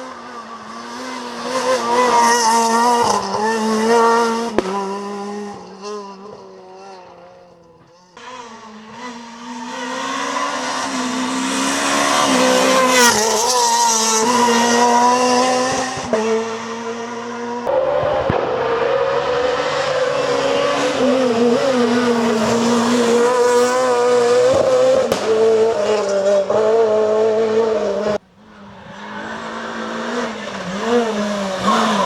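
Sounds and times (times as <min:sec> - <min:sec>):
rally car engine at high revs: 0:00.0 - 0:32.0.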